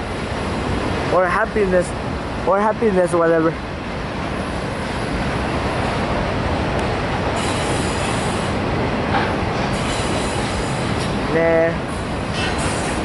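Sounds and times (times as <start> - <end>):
steel wheels rumbling on track: 0.0 - 13.0
high wheel squeal: 7.4 - 8.6, 9.6 - 11.2, 11.9 - 13.0.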